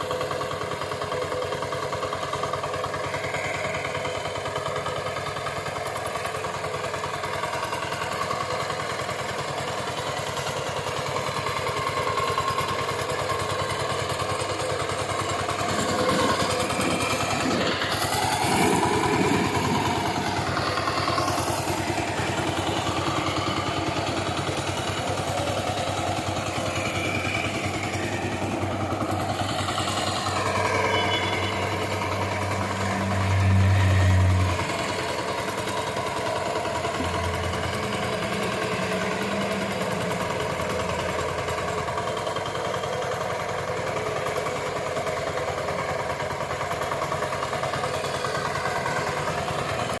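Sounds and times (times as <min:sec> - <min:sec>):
power tiller engine running: 0:00.0 - 0:50.0
low hum: 0:15.4 - 0:22.6, 0:26.4 - 0:42.1.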